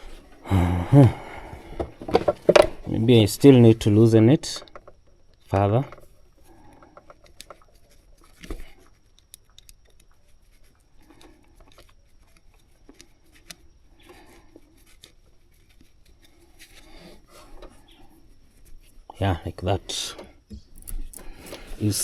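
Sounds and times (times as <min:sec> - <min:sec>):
hands handling fuel hose clicks: 0:20.5 - 0:22.0.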